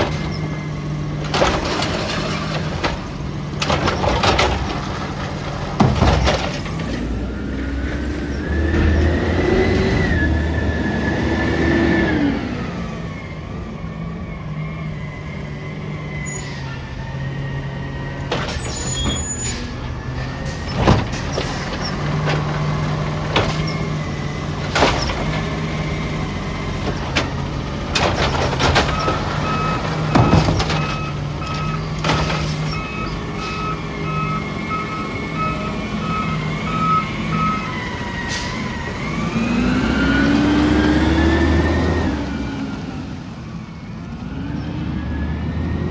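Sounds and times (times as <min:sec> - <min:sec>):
sharp clanks and knocks: 0:00.0 - 0:07.2, 0:18.2 - 0:19.7, 0:20.4 - 0:32.9
truck engine revving: 0:00.0 - 0:45.9
reverse alarm beeping: 0:32.6 - 0:37.8.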